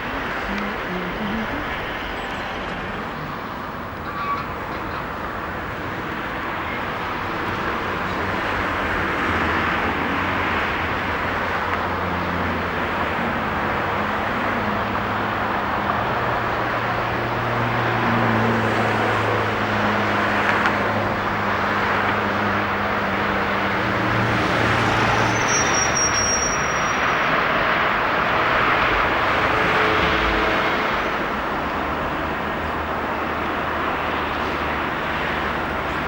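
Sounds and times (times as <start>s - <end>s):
diesel train engine running: 0.0s - 17.5s
high squeal: 24.7s - 27.9s.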